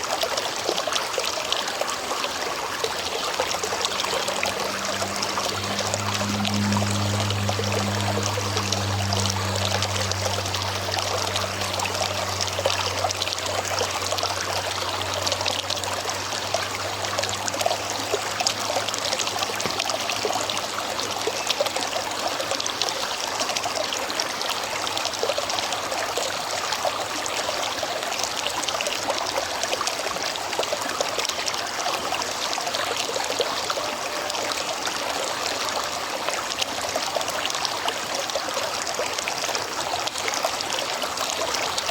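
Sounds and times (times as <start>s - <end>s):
river water flowing: 0.0s - 41.9s
low hum: 2.5s - 22.5s.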